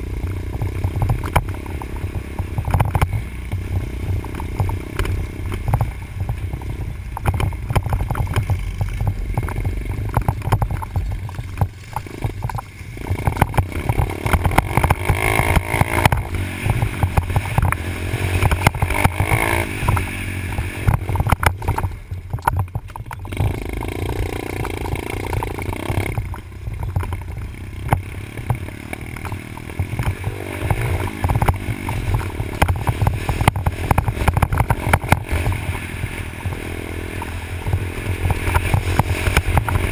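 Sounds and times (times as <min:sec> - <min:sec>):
dirt bike engine revving: 0:00.0 - 0:22.0, 0:23.2 - 0:39.9.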